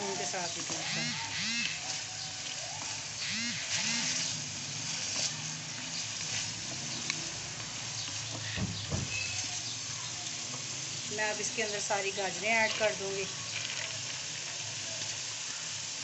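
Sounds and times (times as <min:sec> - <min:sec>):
wooden spatula scraping a pan: 0:00.0 - 0:09.7, 0:11.4 - 0:15.2
chicken sizzling in a wok: 0:00.0 - 0:16.0
short pitched calls: 0:00.8 - 0:02.2, 0:03.1 - 0:04.4.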